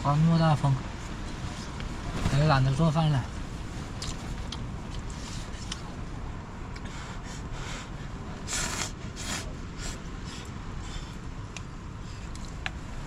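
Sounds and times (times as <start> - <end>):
wind buffeting microphone: 0.0 - 6.8
rustling or scraping bursts: 1.0 - 5.9.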